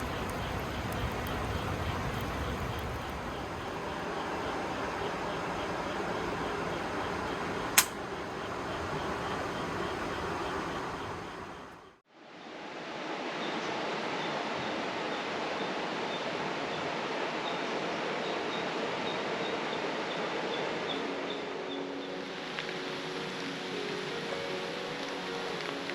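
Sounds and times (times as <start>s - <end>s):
rain: 0.0s - 25.9s
sharp pop: 7.8s - 8.0s.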